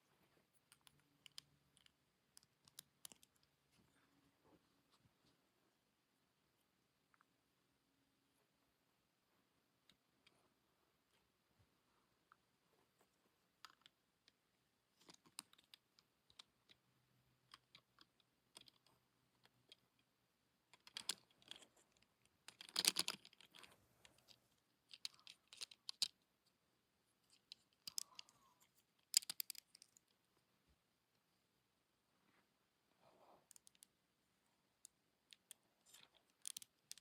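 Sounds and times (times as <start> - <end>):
plastic clicking and rattling: 20.7 - 26.2, 27.3 - 30.1, 34.8 - 37.0.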